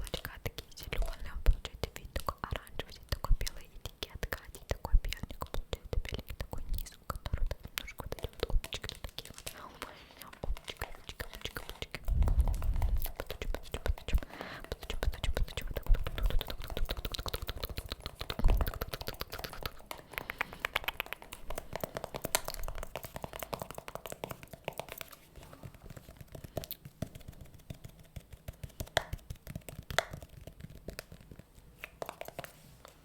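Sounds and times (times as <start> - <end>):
rapid tapping and clicking: 10.3 - 32.5.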